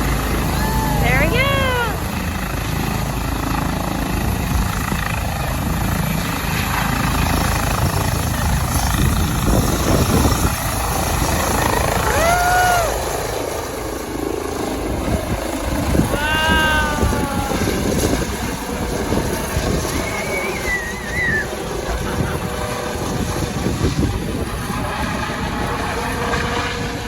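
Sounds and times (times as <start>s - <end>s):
helicopter rotor and engine: 0.0s - 27.0s
voice calls: 16.1s - 17.9s, 20.0s - 21.6s.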